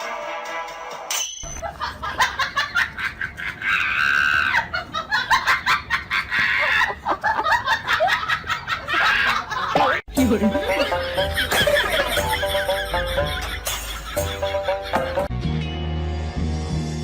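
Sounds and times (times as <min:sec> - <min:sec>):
music: 0:00.0 - 0:01.5, 0:10.1 - 0:17.0
high-pitched shrieking cries: 0:03.6 - 0:04.7.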